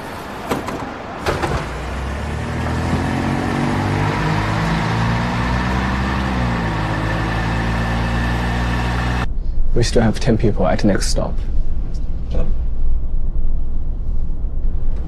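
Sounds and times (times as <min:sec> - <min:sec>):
bus engine humming: 0:00.0 - 0:09.3.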